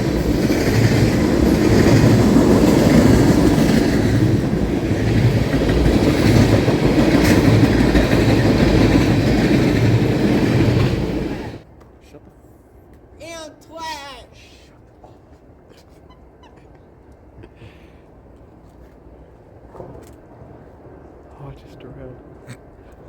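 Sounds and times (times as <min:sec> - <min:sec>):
railroad cars rumbling past: 0:00.0 - 0:11.7.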